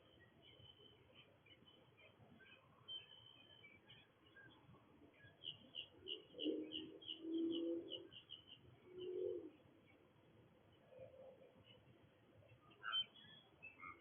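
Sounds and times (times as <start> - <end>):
dove cooing: 6.1 - 8.0, 8.9 - 9.6.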